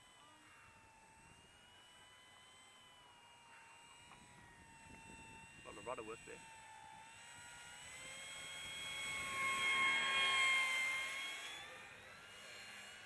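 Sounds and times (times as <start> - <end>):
model plane motor whining: 0.0 - 13.0.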